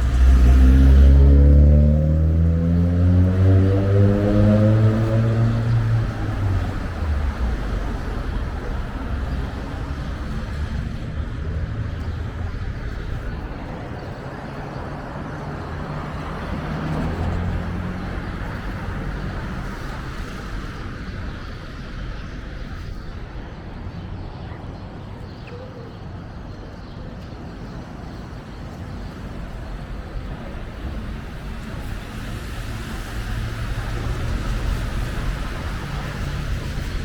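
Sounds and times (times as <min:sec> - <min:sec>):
vehicle engine passing: 0:00.0 - 0:13.8, 0:15.5 - 0:21.2, 0:29.8 - 0:37.0
steady traffic rumble: 0:00.0 - 0:37.0.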